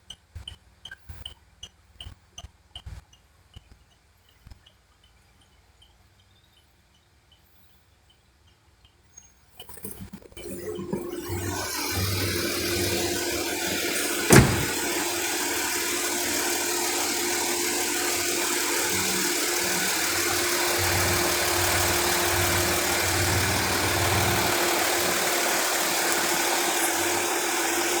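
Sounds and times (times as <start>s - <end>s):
diesel engine idling: 12.8s - 28.0s.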